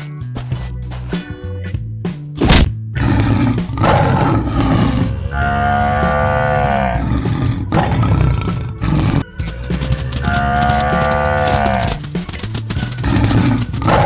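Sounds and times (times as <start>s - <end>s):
background music: 0.0s - 14.0s
short loud hit: 2.4s - 2.8s
lion roaring: 3.0s - 9.3s, 9.9s - 12.0s, 13.0s - 14.0s.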